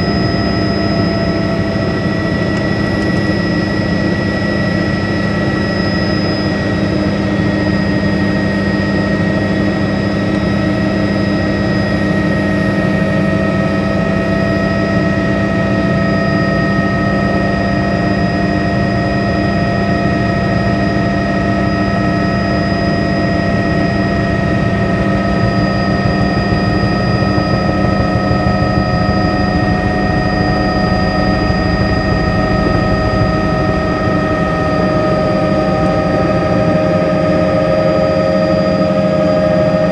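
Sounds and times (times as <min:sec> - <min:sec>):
helicopter turbine whine: 0:00.0 - 0:39.9
helicopter rotor beating: 0:16.2 - 0:39.3.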